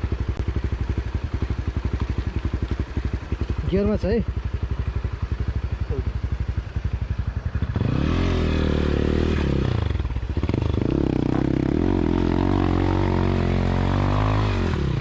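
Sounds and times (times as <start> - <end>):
dirt bike engine revving: 5.1 - 15.0.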